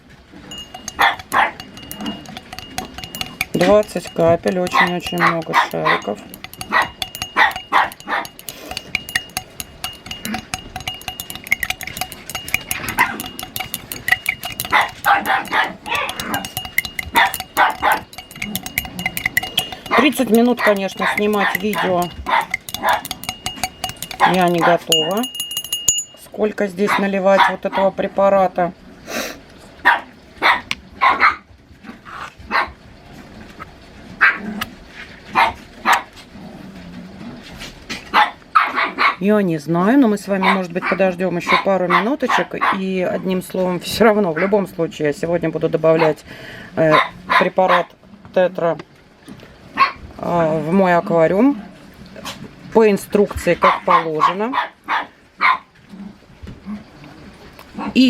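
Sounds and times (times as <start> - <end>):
small dogs barking: 0.9 - 1.6, 4.7 - 8.4, 14.6 - 16.3, 17.2 - 18.1, 19.9 - 23.1, 26.8 - 27.9, 29.8 - 31.4, 32.5 - 32.8, 35.3 - 36.2, 38.1 - 39.2, 40.4 - 42.9, 46.9 - 47.9, 53.6 - 56.1.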